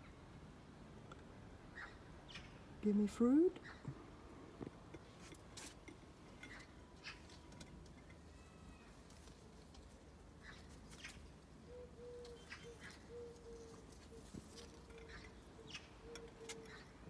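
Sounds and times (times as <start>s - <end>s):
faint bird chirps: 8.2s - 9.5s, 10.4s - 17.0s.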